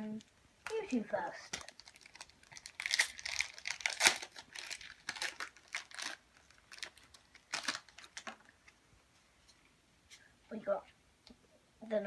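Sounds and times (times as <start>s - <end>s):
foil wrapper crinkling and tearing: 0.6s - 8.5s.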